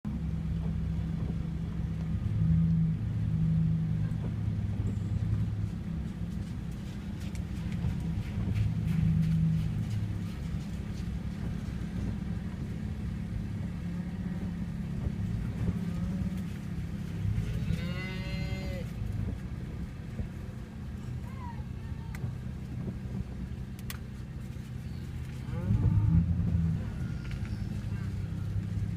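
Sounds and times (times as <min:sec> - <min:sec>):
vehicle engine hum: 0:00.0 - 0:28.9
cattle mooing: 0:17.4 - 0:18.9, 0:25.4 - 0:26.5.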